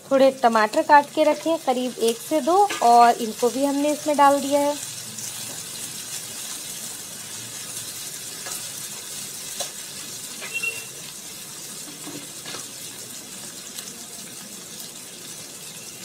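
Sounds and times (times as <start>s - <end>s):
vegetables sizzling in hot oil: 0.0s - 16.0s
brief squeak: 10.4s - 11.0s.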